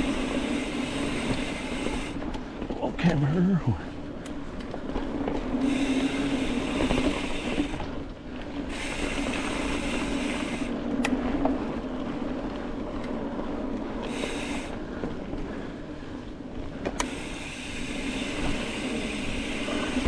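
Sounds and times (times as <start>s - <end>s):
freewheel buzzing: 0.0s - 2.3s, 5.3s - 8.0s, 8.6s - 11.8s, 16.9s - 20.0s
bike tyres and drivetrain rattling: 0.0s - 2.8s, 3.9s - 20.0s.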